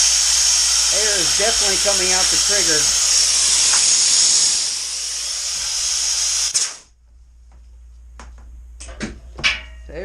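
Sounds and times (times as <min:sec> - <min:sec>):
compressed air hissing: 0:00.0 - 0:06.9
valve click: 0:03.5 - 0:04.5.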